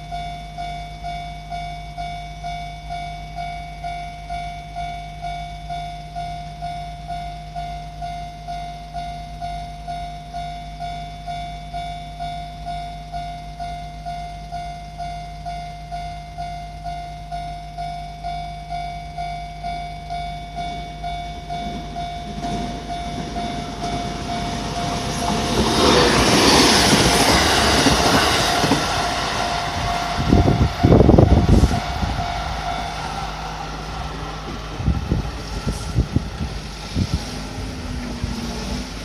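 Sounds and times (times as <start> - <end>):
level crossing warning bell ringing: 0.0 - 38.1
electric train rushing past: 19.6 - 39.0.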